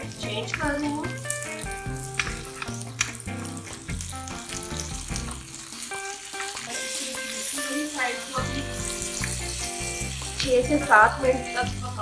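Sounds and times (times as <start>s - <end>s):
background music with bass line: 0.0s - 5.5s, 8.4s - 12.0s
meat sizzling on a grill pan: 0.0s - 12.0s.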